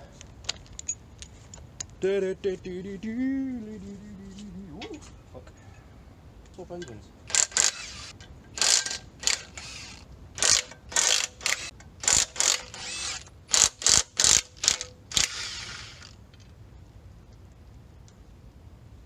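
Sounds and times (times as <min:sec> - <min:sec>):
socket ratchet clicking: 0:07.3 - 0:16.1.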